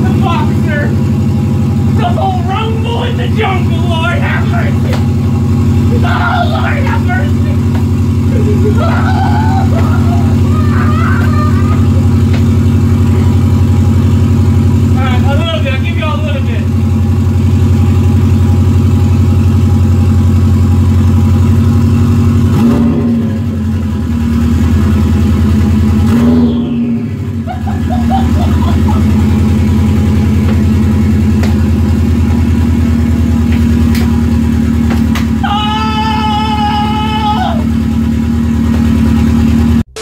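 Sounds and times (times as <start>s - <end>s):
car engine running without exhaust: 0.0s - 40.0s.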